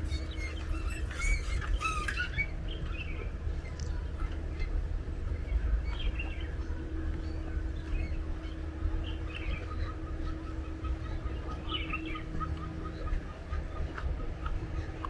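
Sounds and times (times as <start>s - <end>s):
wild birds chirping: 7.2s - 13.9s.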